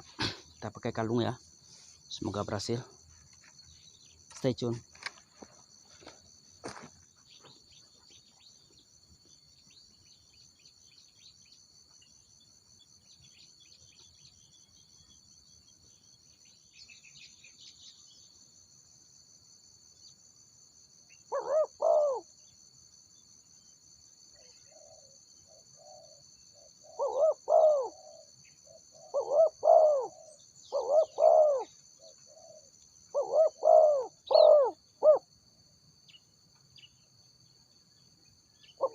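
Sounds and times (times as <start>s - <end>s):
insects buzzing: 0.0s - 38.9s
dove cooing: 21.3s - 22.3s, 24.4s - 35.3s.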